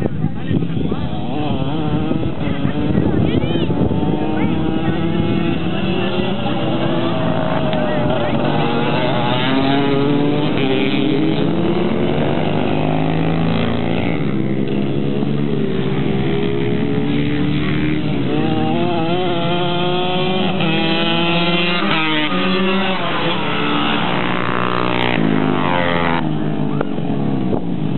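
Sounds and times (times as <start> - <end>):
racing motorcycle engines revving: 0.0 - 27.9.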